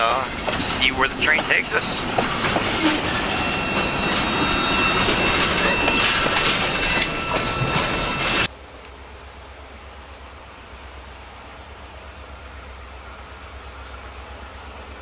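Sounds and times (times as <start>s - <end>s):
train wheel clatter: 0.0s - 8.5s
high-pitched wheel squeal: 2.2s - 8.5s.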